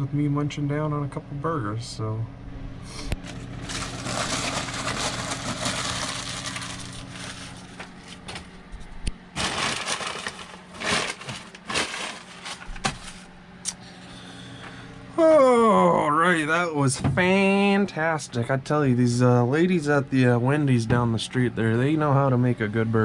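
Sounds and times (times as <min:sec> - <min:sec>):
faint low hum: 0:00.0 - 0:23.0
paper wrapper rustling: 0:03.2 - 0:08.6, 0:09.4 - 0:13.3.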